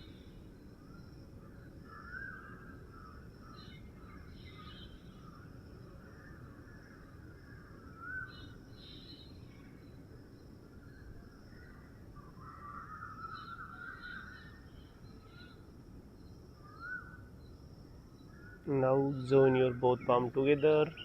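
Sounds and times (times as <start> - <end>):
birds chirping: 18.2 - 21.0.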